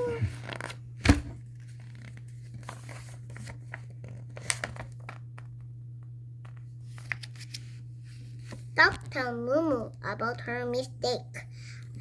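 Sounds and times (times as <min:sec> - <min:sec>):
page turning: 0:00.1 - 0:05.7, 0:06.5 - 0:07.8
paper rustling: 0:00.2 - 0:05.5, 0:06.8 - 0:08.7.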